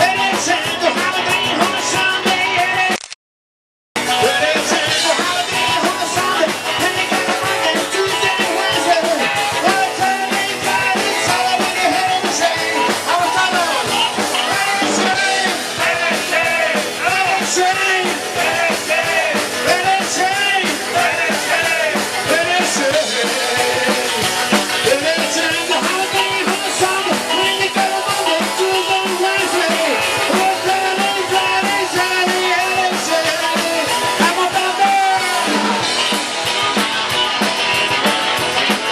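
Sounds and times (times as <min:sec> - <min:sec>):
rock band playing: 0:00.0 - 0:03.0, 0:04.0 - 0:38.9
bending guitar lead line: 0:04.0 - 0:38.9.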